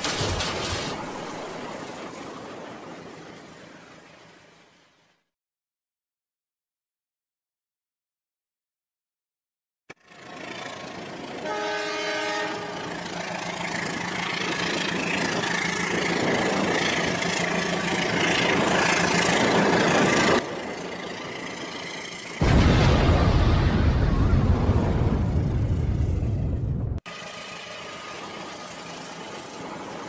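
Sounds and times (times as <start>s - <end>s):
running train rumble and clatter: 10.0s - 22.7s, 25.2s - 30.0s
train horn: 11.4s - 13.1s.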